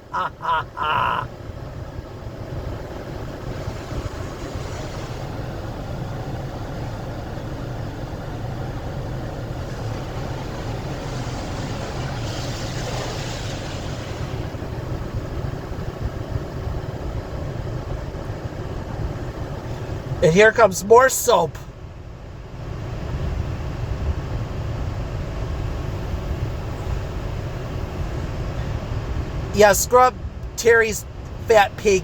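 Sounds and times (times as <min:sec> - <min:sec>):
car wash machinery hum: 0:00.0 - 0:32.0
water spraying over car: 0:03.4 - 0:06.8, 0:09.0 - 0:14.6.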